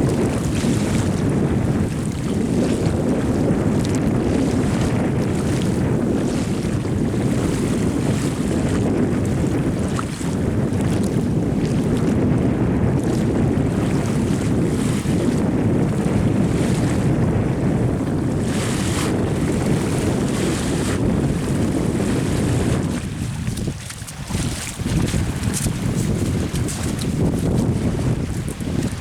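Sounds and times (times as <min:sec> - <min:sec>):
wind buffeting microphone: 0:00.0 - 0:29.0
sea waves washing: 0:12.9 - 0:29.0.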